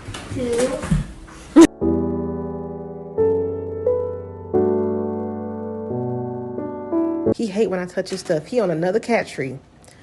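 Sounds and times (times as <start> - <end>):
held piano chord: 1.7 - 7.4.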